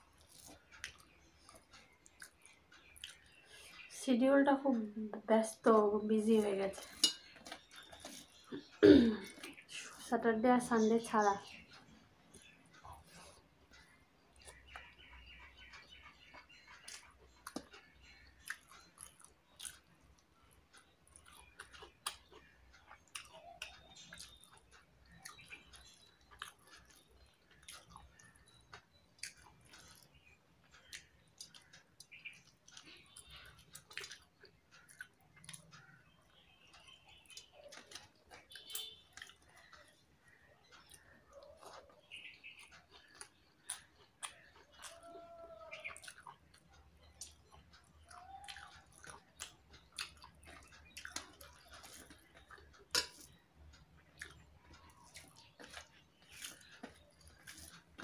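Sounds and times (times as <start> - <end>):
person chewing with wet mouth sounds: 0.0 - 3.9, 6.8 - 10.1, 11.4 - 58.0.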